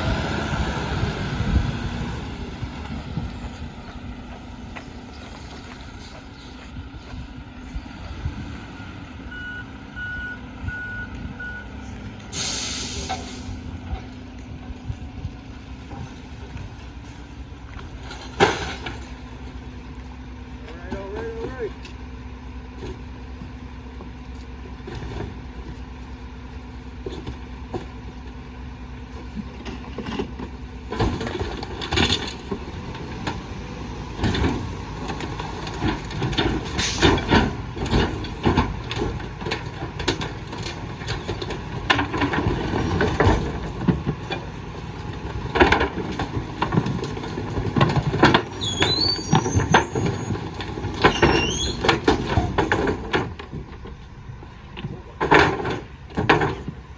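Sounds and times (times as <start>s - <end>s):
high squeals: 48.6s - 50.5s, 51.1s - 51.9s.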